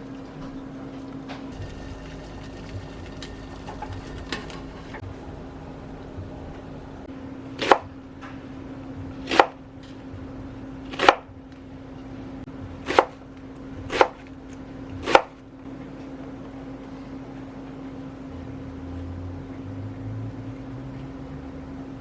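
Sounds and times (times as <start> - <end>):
steady low hum: 0.0 - 22.0
knife chopping on cutting board: 7.6 - 7.9, 9.1 - 9.6, 10.9 - 11.3, 12.8 - 13.2, 13.8 - 14.3, 14.9 - 15.4.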